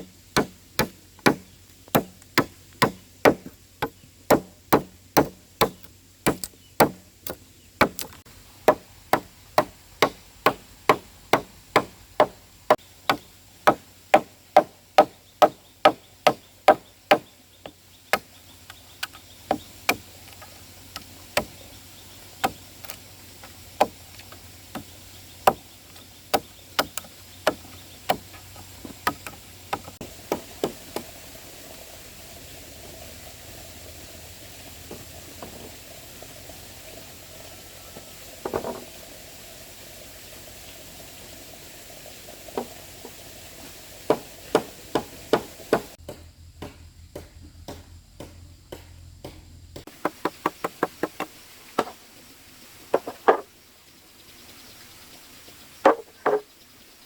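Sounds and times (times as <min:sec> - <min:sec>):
hand tool knocking on wood: 0:00.4 - 0:07.0.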